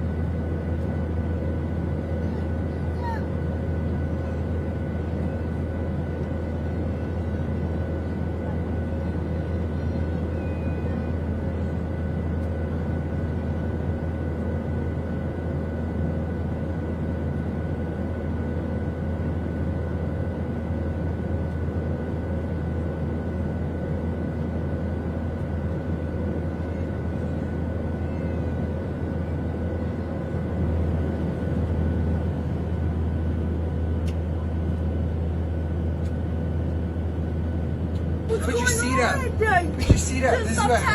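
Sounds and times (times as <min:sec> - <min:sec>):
airliner cabin drone: 0:00.0 - 0:40.9.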